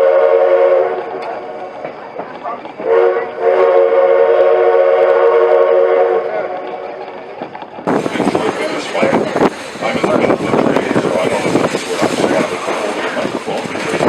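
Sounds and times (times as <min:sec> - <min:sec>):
steam whistle blasts: 0:00.0 - 0:01.5, 0:02.8 - 0:06.4
wind on microphone: 0:06.6 - 0:14.0.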